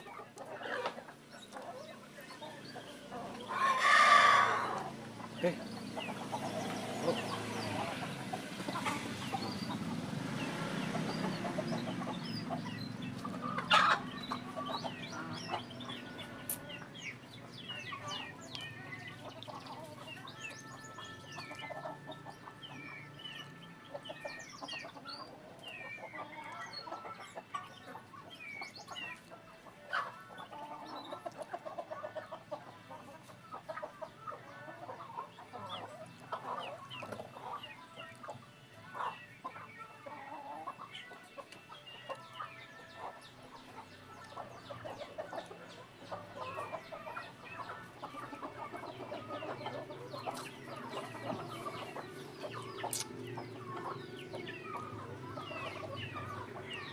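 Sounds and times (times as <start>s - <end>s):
chickens clucking: 0.0s - 56.9s
high chirping calls: 33.6s - 56.9s.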